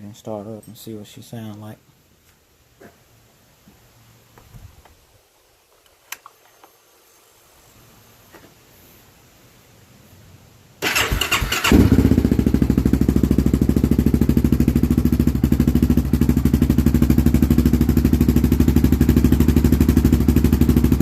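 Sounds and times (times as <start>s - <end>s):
engine cranking: 10.8s - 12.0s
engine idling: 10.8s - 21.0s.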